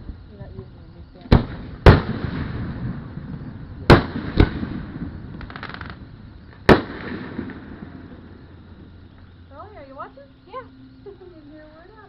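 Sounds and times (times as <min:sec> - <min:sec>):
fireworks crackling: 0:00.0 - 0:10.6
fireworks bursting with bangs: 0:01.1 - 0:09.0.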